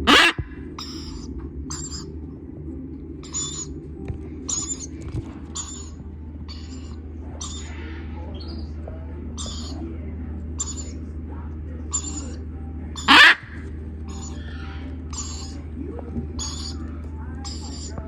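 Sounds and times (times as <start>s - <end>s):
bird chicks calling: 0.0s - 2.1s, 3.2s - 3.7s, 4.5s - 8.8s, 9.4s - 9.8s, 10.6s - 11.0s, 11.9s - 12.4s, 13.0s - 13.5s, 14.1s - 15.7s, 16.4s - 16.9s, 17.5s - 18.0s
steady low hum: 0.0s - 18.0s.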